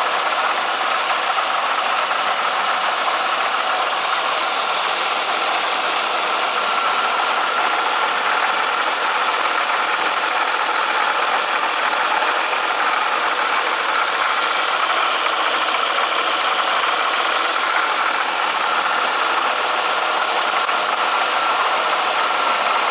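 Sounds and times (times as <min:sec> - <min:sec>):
supercharger rattling at idle: 0:00.0 - 0:22.9.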